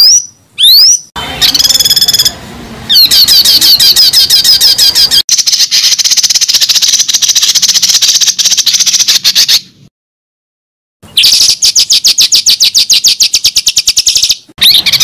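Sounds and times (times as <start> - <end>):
bird chirping: 0.0 - 9.8, 11.0 - 15.0.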